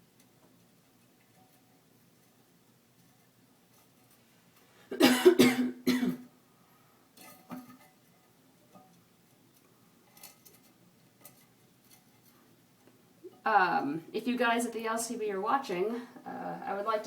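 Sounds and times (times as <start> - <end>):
person coughing: 4.9 - 6.2.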